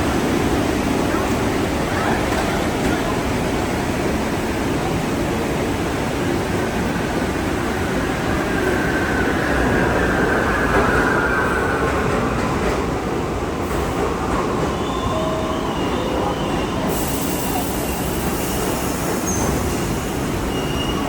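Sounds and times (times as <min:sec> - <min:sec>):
subway train rumbling on rails: 0:00.0 - 0:21.0
high wheel squeal: 0:14.7 - 0:21.0.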